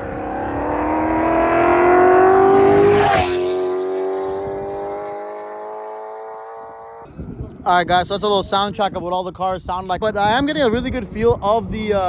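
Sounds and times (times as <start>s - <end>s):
car engine accelerating: 0.0s - 7.1s.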